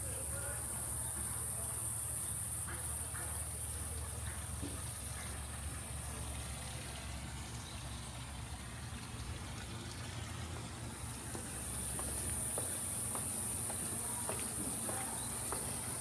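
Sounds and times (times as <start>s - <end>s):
low steady rumble: 3.6s - 14.1s.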